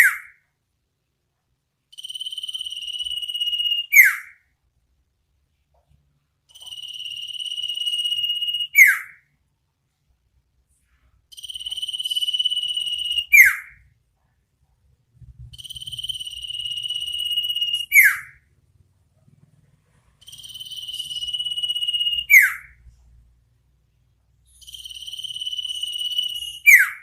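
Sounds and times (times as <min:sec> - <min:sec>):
bird trill and whistle call: 0:02.0 - 0:04.4, 0:06.6 - 0:09.2, 0:11.3 - 0:13.8, 0:15.5 - 0:18.4, 0:20.2 - 0:22.8, 0:24.5 - 0:27.0.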